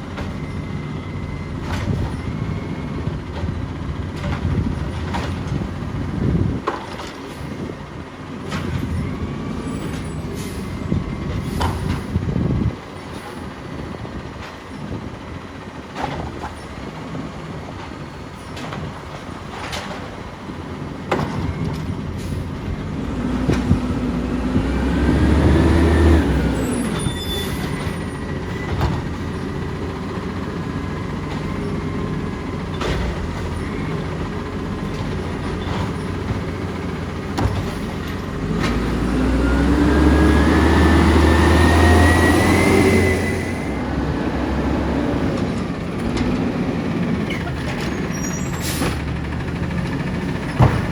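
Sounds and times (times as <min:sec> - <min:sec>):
knocks and clunks: 0:01.6 - 0:02.3, 0:03.3 - 0:07.5, 0:17.8 - 0:39.4, 0:43.8 - 0:50.9
diesel engine revving with whine: 0:22.6 - 0:50.9.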